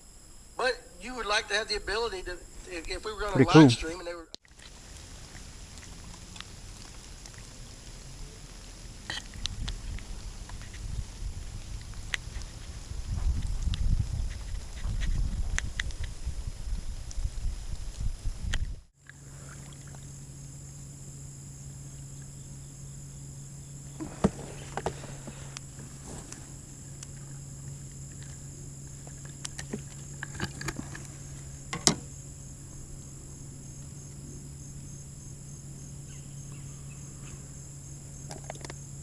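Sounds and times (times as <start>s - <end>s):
crickets chirping: 0.0s - 39.0s
low steady hum: 0.0s - 39.0s.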